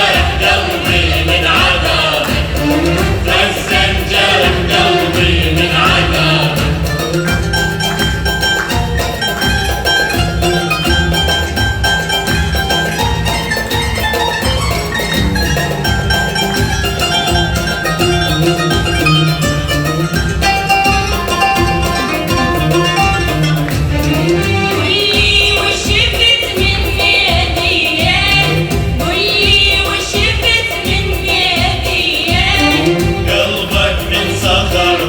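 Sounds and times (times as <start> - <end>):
voices singing together: 0.0 - 8.7, 15.7 - 35.0
percussion: 0.0 - 35.0
plucked strings: 0.0 - 35.0.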